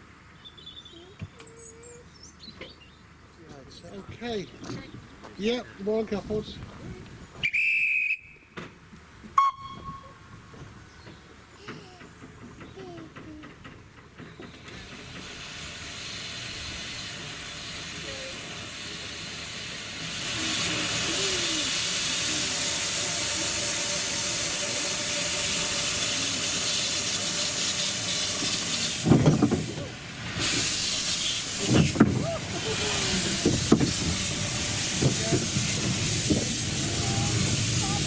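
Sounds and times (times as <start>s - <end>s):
steam hissing: 14.2s - 38.0s
loud steam bursts: 14.4s - 38.0s.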